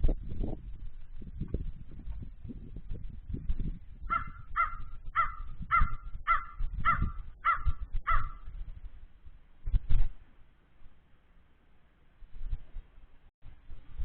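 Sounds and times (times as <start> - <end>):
crow cawing: 4.1 - 8.4.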